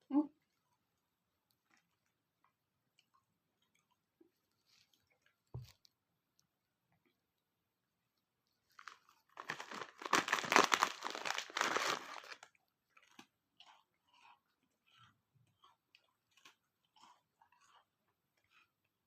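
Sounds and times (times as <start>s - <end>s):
dog crunching a treat: 8.8s - 17.9s.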